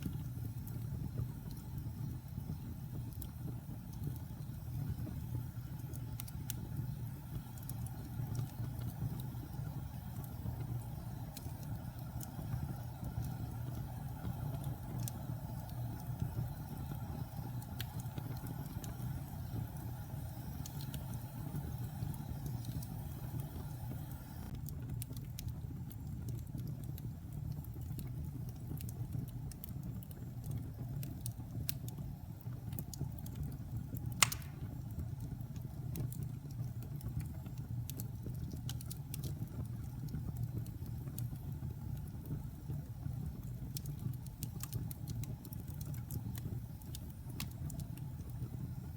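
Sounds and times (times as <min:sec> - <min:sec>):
fireplace fire crackling: 0:00.0 - 0:48.9
sharp loud pop of fire: 0:34.2 - 0:34.7.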